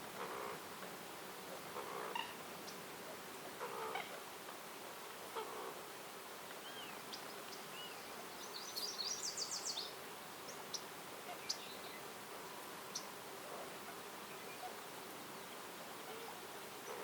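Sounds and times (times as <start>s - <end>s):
outdoor background noise: 0.0s - 17.0s
birds whistling and chirping: 7.8s - 9.9s.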